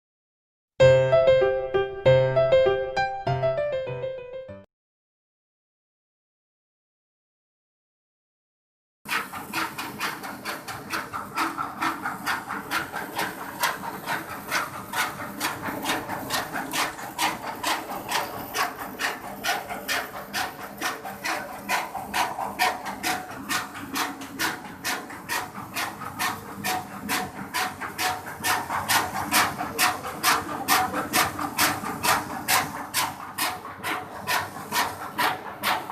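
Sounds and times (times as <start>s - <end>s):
polishing machine clattering: 9.3s - 35.9s.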